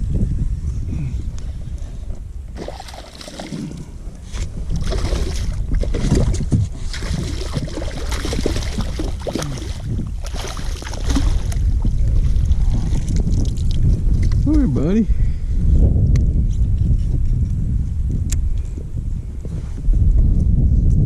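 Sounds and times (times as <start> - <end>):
wind rumble on microphone: 0.0 - 21.0
water splashing around a kayak: 2.4 - 14.4.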